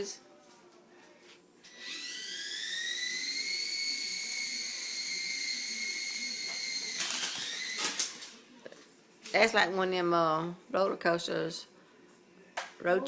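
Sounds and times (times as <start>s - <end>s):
toy helicopter motor whine: 1.8s - 8.1s.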